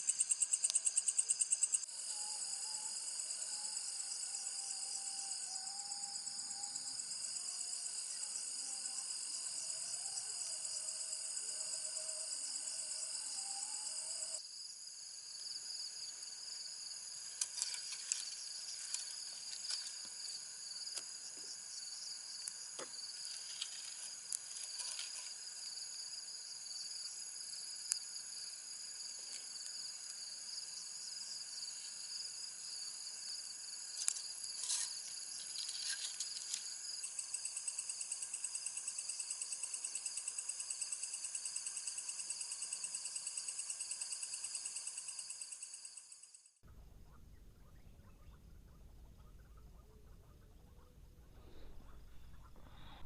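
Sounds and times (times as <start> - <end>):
chorus of insects: 0.0 - 46.6
small clicks and ticks: 17.3 - 20.2, 34.0 - 37.4.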